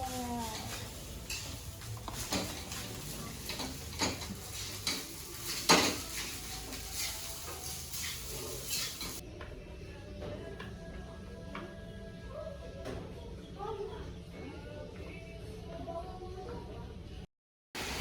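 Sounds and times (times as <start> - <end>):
utensils clinking on pans: 0.3 - 9.2.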